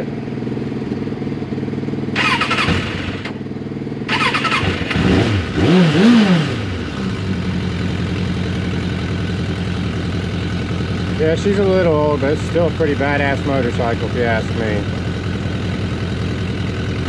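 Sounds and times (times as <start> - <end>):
motorcycle engine revving and idling: 0.0 - 17.0
other motorcycle engines idling: 0.0 - 17.0
motorcycle starter cranking: 2.2 - 3.4, 4.1 - 5.0.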